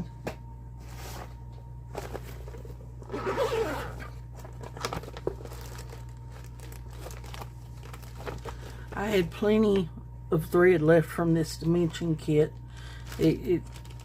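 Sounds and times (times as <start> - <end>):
steady low hum: 0.0 - 14.0
rustling and crinkling of thread: 4.2 - 9.8, 11.5 - 14.0.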